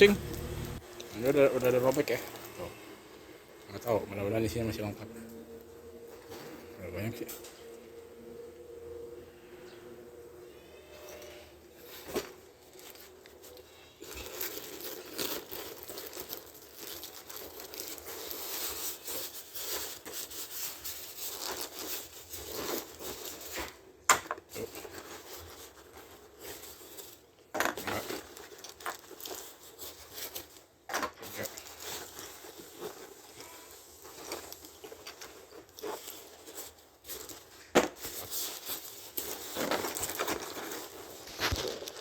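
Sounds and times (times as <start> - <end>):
wrapping paper crinkling and tearing: 0.0 - 2.8, 11.8 - 42.0.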